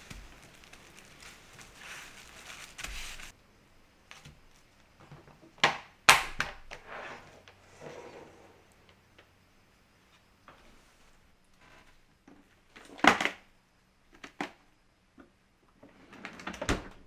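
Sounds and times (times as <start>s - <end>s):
soft hiss: 0.0s - 5.4s.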